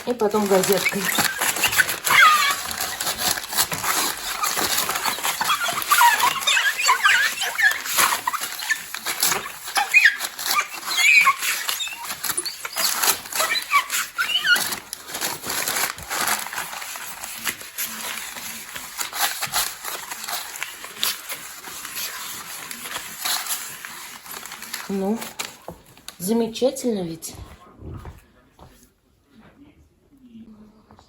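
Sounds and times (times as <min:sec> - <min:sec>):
newspaper rubbing on glass: 0:00.0 - 0:25.6
high squeaks on glass: 0:00.4 - 0:15.6.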